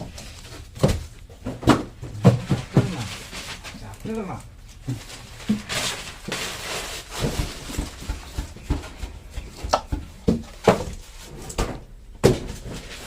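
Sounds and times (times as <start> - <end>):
irregular knocks and taps: 7.2 - 11.0.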